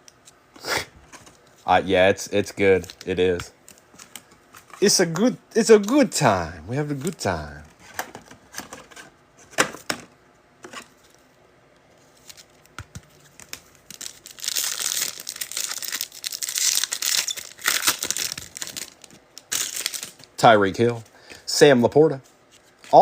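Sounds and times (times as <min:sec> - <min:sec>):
foil wrapper crinkling and tearing: 0:13.3 - 0:20.3.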